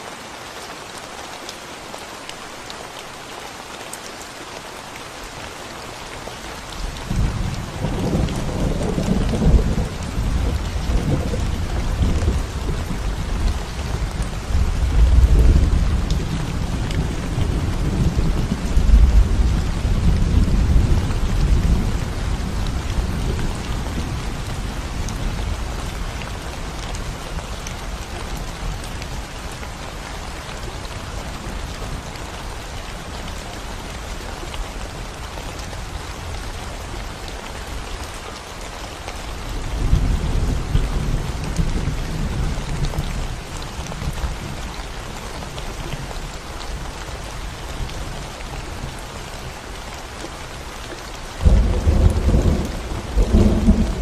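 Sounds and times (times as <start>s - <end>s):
rain on concrete road: 0.0s - 54.0s
thunder rumbling: 7.1s - 26.0s, 51.4s - 54.0s.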